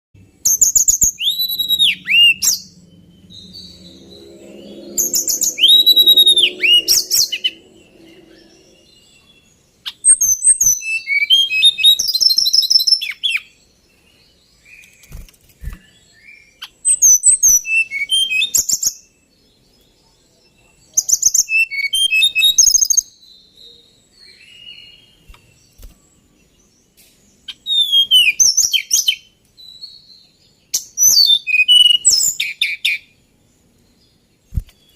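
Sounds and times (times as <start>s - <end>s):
bird rapid whistled phrases: 0.5s - 2.7s, 4.9s - 7.7s, 9.8s - 13.4s, 15.1s - 18.9s, 21.0s - 23.0s, 27.5s - 29.2s, 30.8s - 33.0s.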